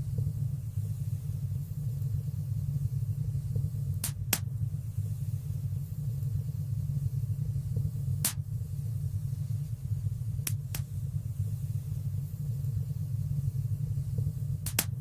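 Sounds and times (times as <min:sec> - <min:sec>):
wood fire popping: 0:14.6 - 0:15.0.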